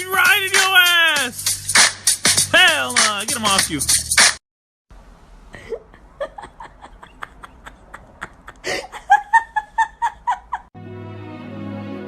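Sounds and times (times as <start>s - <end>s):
person laughing: 5.5s - 10.7s.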